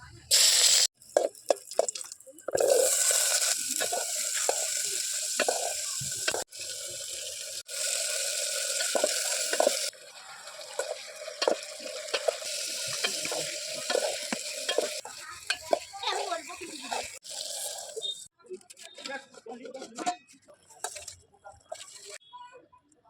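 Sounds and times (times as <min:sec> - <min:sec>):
food sizzling in hot oil: 0:00.3 - 0:18.3
utensil stirring and scraping: 0:01.1 - 0:06.5, 0:07.7 - 0:22.2.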